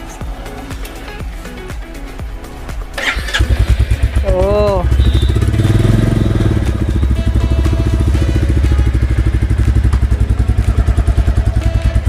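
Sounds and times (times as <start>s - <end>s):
motorcycle engine idling: 2.8s - 12.0s.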